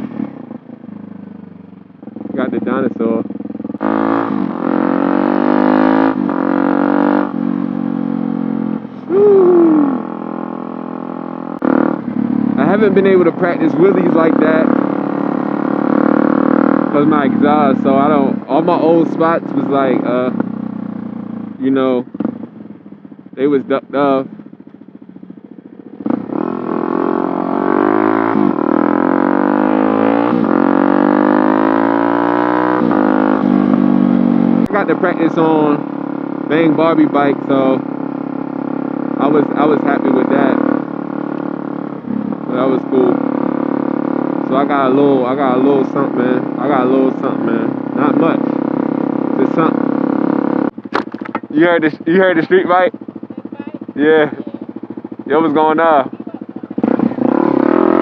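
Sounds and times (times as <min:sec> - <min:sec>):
motorcycle engine revving: 0:00.0 - 0:58.0
small dirt bike engine revving: 0:03.8 - 0:07.4, 0:11.6 - 0:20.3, 0:26.0 - 0:33.8, 0:55.2 - 0:58.0.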